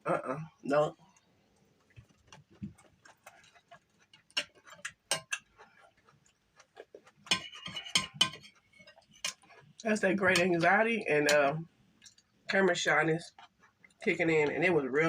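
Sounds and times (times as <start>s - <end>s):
chewing clicks and smacks: 1.1s - 9.9s, 12.0s - 12.4s, 13.3s - 14.1s.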